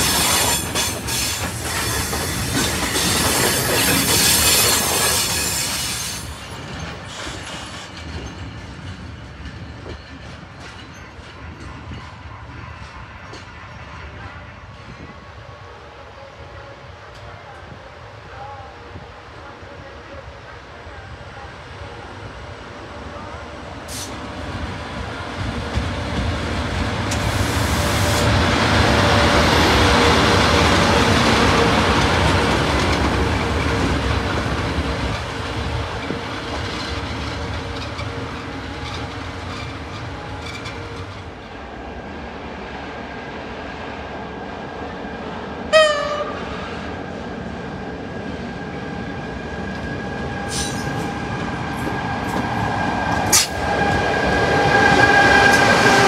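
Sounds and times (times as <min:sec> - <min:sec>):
high whine of train: 0:00.0 - 0:56.0
train rushing past on rails: 0:00.0 - 0:56.0
short train horn toot: 0:45.7 - 0:46.5.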